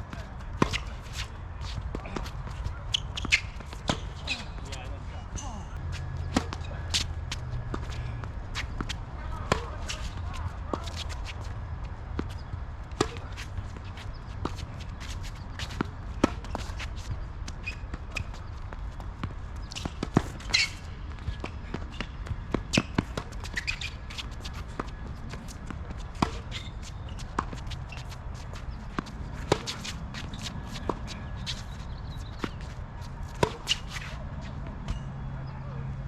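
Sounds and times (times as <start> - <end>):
tennis ball bouncing on court: 0.1 - 4.9, 6.1 - 35.1
footsteps shuffling: 19.6 - 34.6.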